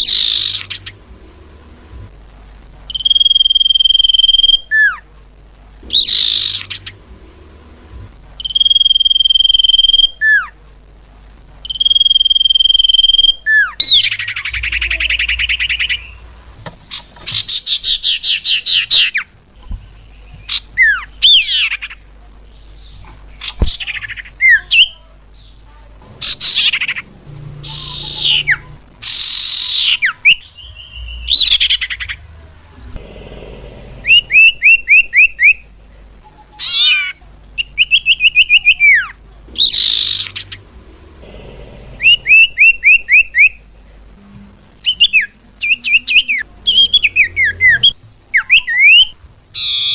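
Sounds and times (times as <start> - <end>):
bird calling: 0.0 - 1.1, 5.8 - 7.1, 33.9 - 35.6, 36.6 - 43.6, 44.8 - 49.9.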